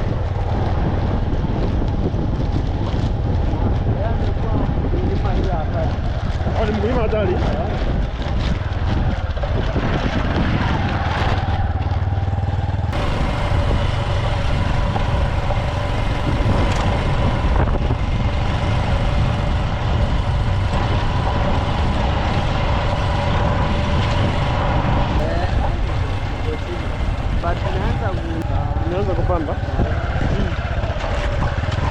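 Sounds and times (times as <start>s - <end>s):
diesel farm machinery running: 7.9s - 31.9s.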